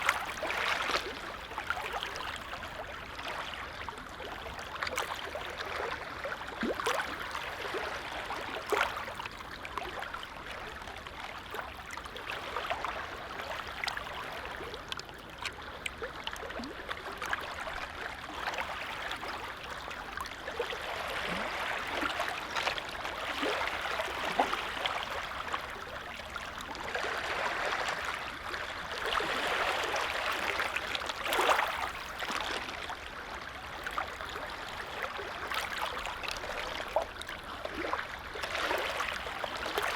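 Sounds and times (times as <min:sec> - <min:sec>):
small waves lapping at shore: 0:00.0 - 0:39.9.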